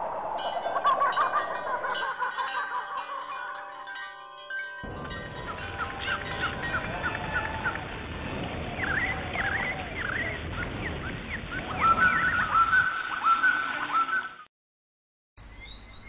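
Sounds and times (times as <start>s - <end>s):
rising bird calls: 8.5s - 14.5s.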